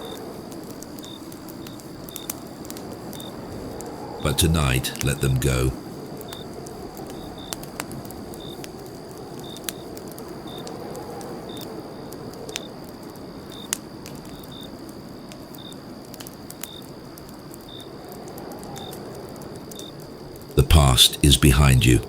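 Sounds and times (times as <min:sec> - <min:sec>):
campfire crackling and popping: 0:00.0 - 0:19.7.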